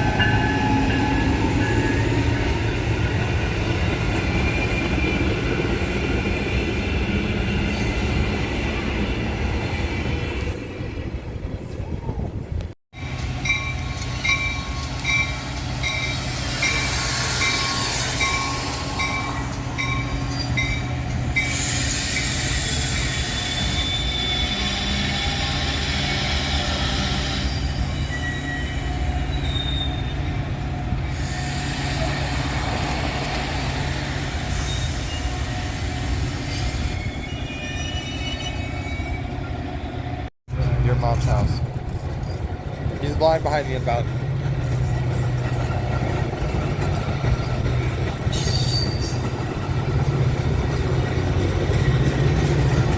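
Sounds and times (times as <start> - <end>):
train rumbling past: 0.0 - 52.9
wheel squeal: 21.4 - 30.4, 33.8 - 39.9, 48.3 - 49.3.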